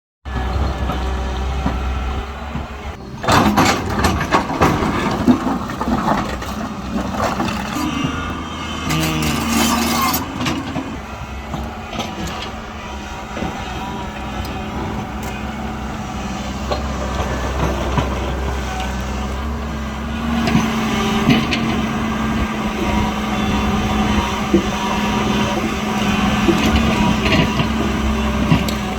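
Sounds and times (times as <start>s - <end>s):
diesel engine running: 0.2s - 28.9s
sharp metal clanks: 8.9s - 10.6s.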